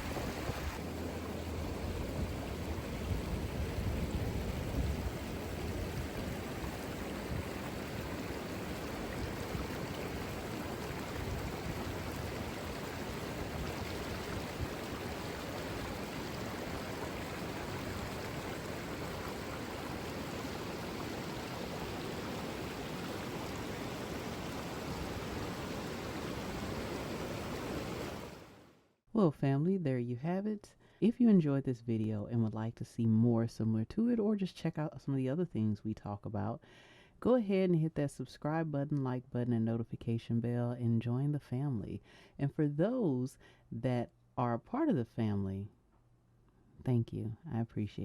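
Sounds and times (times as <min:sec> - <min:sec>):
river water rushing: 0:00.0 - 0:03.6, 0:05.1 - 0:28.7.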